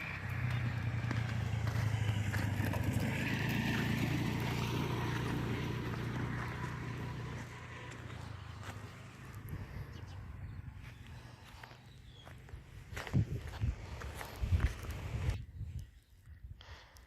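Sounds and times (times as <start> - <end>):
vehicle engine passing by: 0.0 - 15.4.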